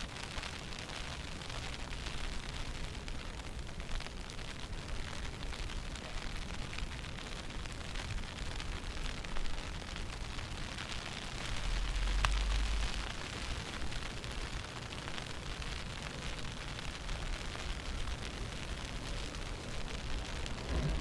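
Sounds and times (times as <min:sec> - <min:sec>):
wind buffeting microphone: 0:18.2 - 0:21.0.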